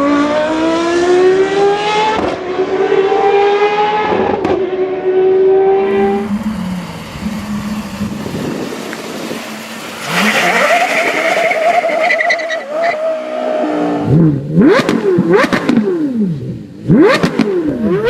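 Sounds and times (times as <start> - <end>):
sports car engine revving: 0.0 - 12.5, 13.4 - 18.0
tyre squeal: 10.1 - 13.3.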